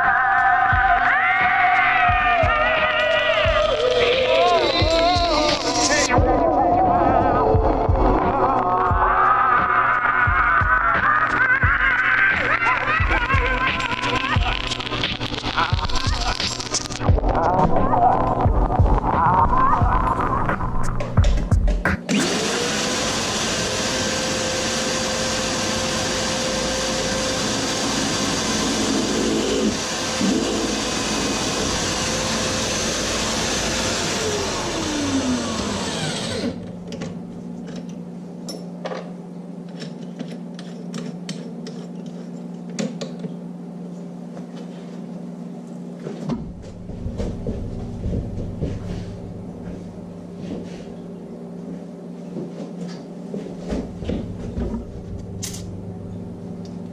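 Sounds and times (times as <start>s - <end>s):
metalworking machine motor: 22.1s - 37.2s.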